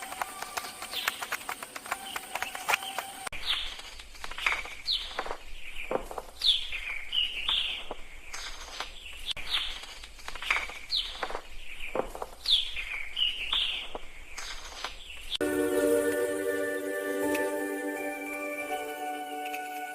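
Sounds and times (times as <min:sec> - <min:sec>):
music: 0:15.4 - 0:19.9.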